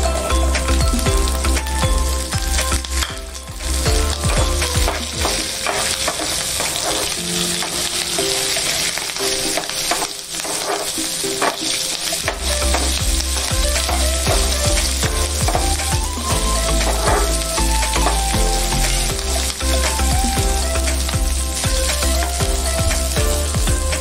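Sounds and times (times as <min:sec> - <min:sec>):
food sizzling in hot oil: 0:00.0 - 0:24.0
spatula scraping a pan: 0:04.8 - 0:14.5, 0:16.8 - 0:17.4.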